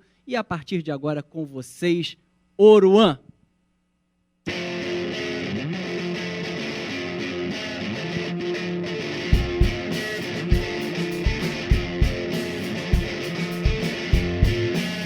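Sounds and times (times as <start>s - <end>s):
electric guitars: 4.5s - 15.0s
kick drum: 9.4s - 9.9s, 10.5s - 12.3s, 13.0s - 14.7s.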